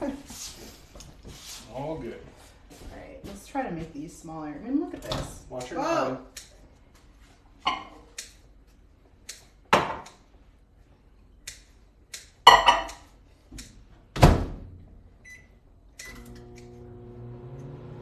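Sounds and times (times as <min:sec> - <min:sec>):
kitchen knocks and thuds: 0:09.7 - 0:10.1.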